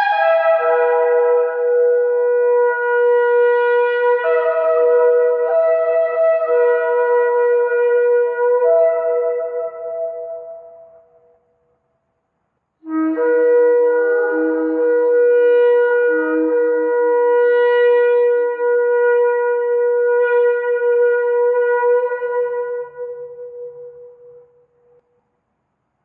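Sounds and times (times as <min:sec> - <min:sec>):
shofar long blast: 0:00.0 - 0:10.6.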